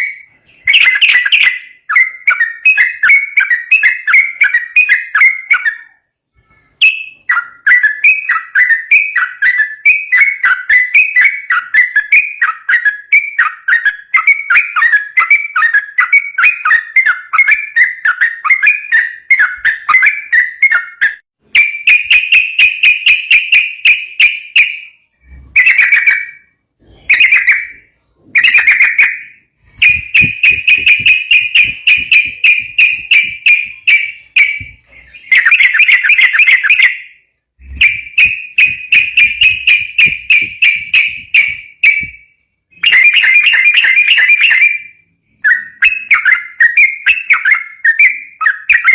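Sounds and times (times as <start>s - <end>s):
bulbul singing: 0.0s - 48.9s.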